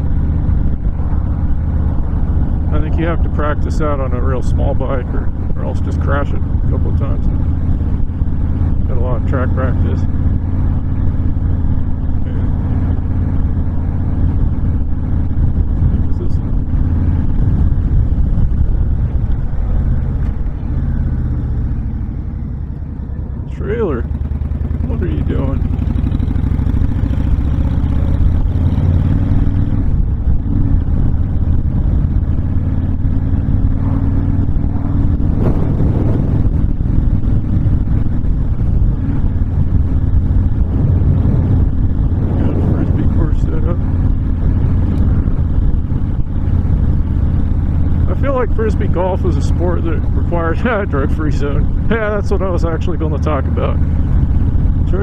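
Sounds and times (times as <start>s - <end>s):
motorcycle engine running: 0.0s - 55.0s
wind noise: 0.0s - 55.0s
wind rushing: 25.6s - 48.1s.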